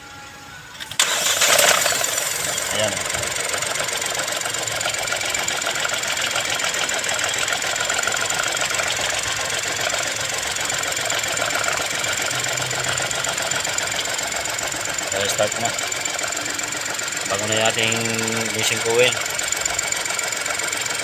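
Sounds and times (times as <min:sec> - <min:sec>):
car engine idling with ticking: 0:01.0 - 0:21.0.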